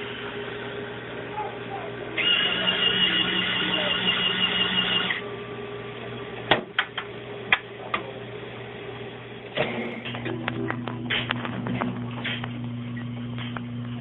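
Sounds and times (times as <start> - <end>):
machine motor whining: 2.0 - 5.3.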